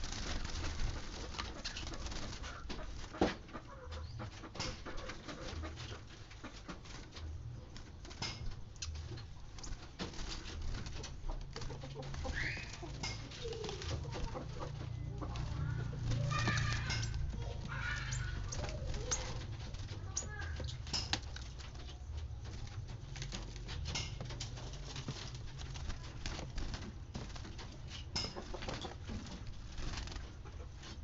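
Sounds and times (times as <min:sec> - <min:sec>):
small bird chirping: 0:08.2 - 0:09.8, 0:11.7 - 0:22.3.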